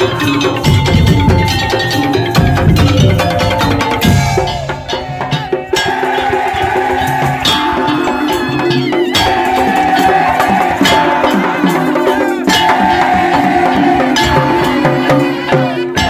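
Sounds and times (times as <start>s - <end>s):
slit drums and drums beat: 0.0s - 16.0s.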